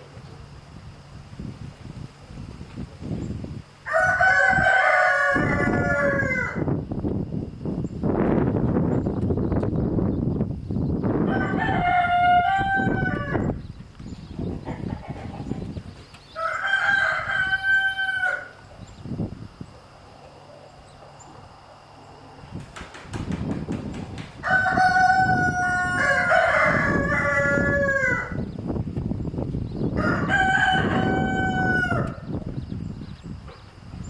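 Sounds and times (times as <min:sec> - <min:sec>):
rooster crowing: 0:03.8 - 0:06.7, 0:11.2 - 0:13.6, 0:16.3 - 0:18.7, 0:24.4 - 0:28.5, 0:29.9 - 0:32.4
second lower rooster crow: 0:03.8 - 0:06.7, 0:11.3 - 0:13.5, 0:16.4 - 0:18.6, 0:24.4 - 0:28.4, 0:30.0 - 0:32.3.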